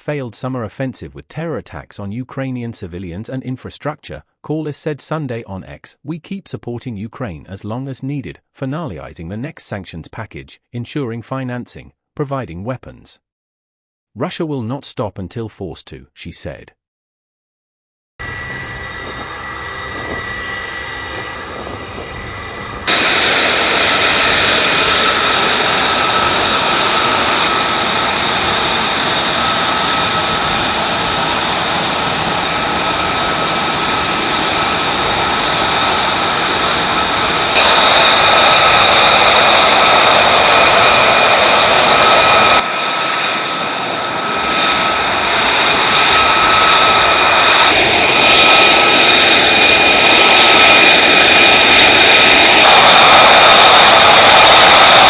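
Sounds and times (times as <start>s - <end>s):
jet engine roar and whine: 18.2s - 55.0s.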